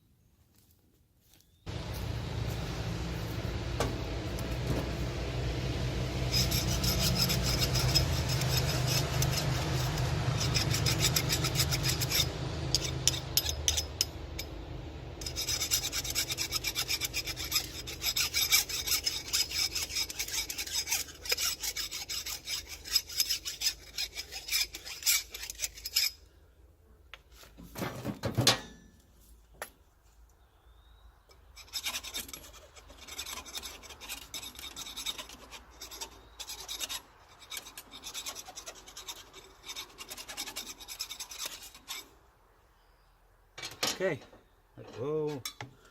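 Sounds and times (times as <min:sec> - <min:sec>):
file rasping on steel: 0:03.5 - 0:14.5, 0:15.2 - 0:26.2, 0:31.4 - 0:42.2.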